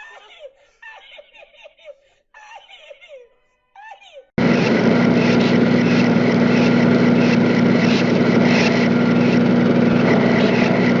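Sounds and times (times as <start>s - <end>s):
motor humming: 4.4s - 11.0s.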